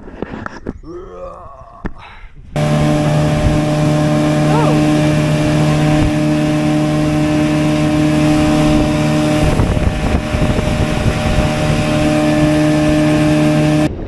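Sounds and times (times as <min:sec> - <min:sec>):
outboard motor running: 0:02.6 - 0:14.0
rough low rumble and knocking: 0:02.6 - 0:14.0.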